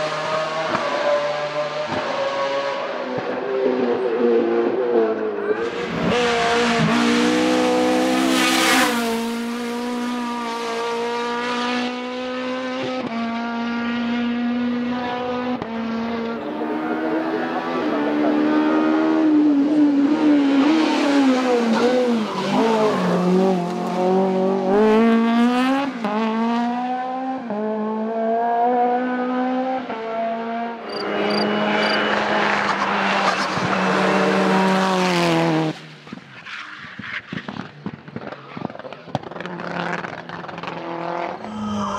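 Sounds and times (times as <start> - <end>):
race car engine revving: 0.0 - 36.2, 37.3 - 41.8.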